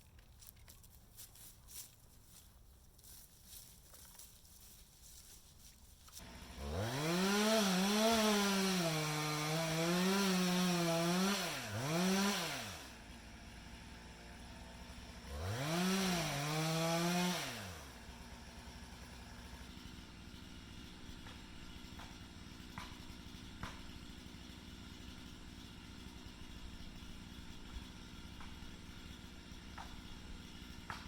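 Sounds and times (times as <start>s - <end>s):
chainsaw revving and idling: 6.1s - 31.0s.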